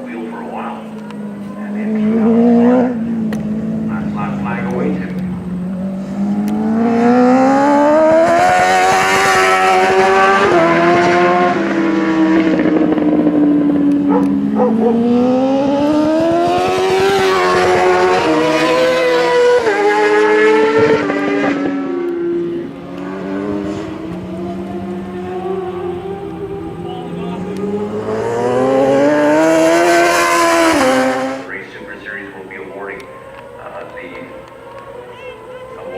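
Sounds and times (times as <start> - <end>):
motorcycle engines at high revs: 0.0 - 35.9.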